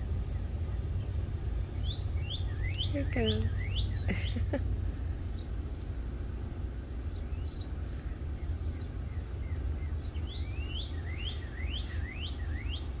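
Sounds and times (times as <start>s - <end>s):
small bird chirping: 0.0s - 6.0s, 6.6s - 13.0s
steady low rumble: 0.0s - 13.0s.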